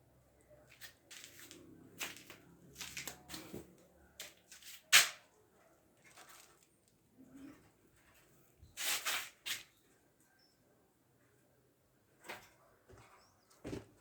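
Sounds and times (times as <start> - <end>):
rustling and clicking handling noises: 0.7 - 5.2, 5.9 - 9.7.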